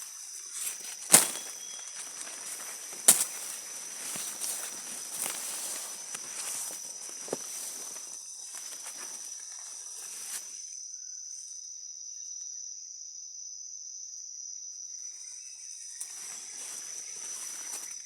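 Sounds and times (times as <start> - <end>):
footsteps rustling through leaves: 0.0 - 10.6, 16.0 - 18.0
high-pitched insect drone: 0.0 - 18.0.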